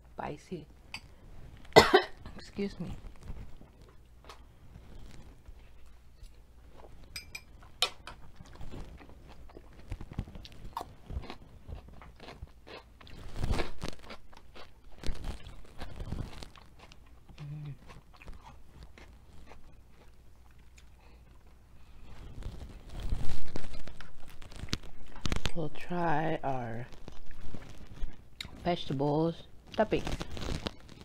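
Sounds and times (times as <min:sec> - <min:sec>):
close chewing and crunching: 0:02.6 - 0:31.0.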